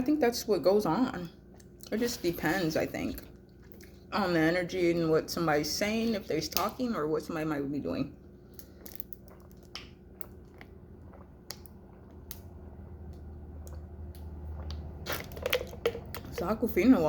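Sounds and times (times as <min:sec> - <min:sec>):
person chewing food: 0:03.2 - 0:04.1, 0:08.5 - 0:16.3.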